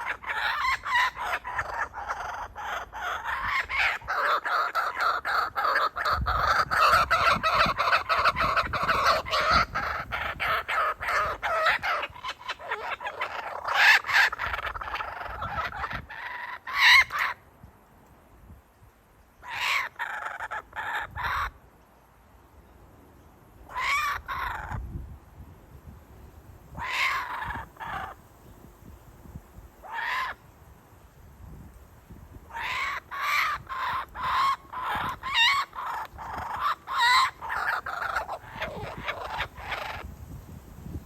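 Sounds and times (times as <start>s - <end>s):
kookaburras calling: 0.0s - 17.4s, 19.4s - 21.6s, 23.7s - 24.9s, 26.7s - 28.2s, 29.8s - 30.5s, 32.5s - 40.2s.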